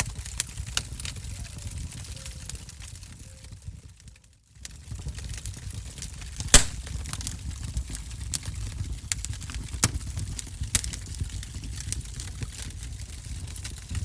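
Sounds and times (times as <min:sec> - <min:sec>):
fire crackling and popping: 0:04.6 - 0:14.0.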